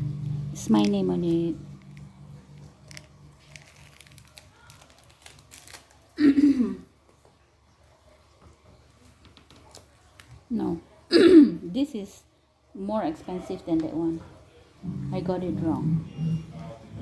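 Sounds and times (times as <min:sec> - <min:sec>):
packaging crinkling and rustling: 0:00.6 - 0:06.2.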